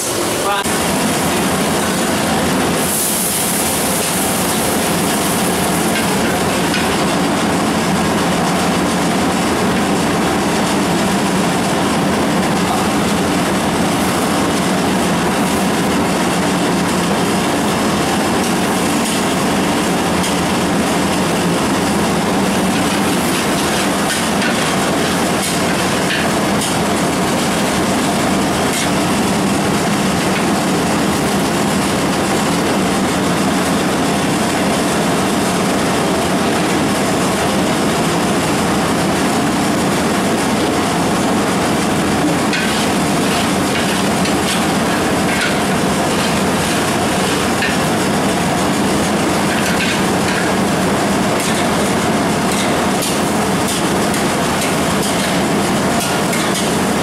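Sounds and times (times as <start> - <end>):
onions sizzling in oil: 1.1 - 7.0.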